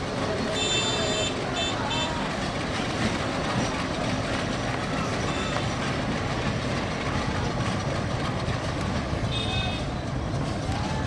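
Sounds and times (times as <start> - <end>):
crowd voices: 0.0 - 11.0
train rumbling past: 0.0 - 11.0.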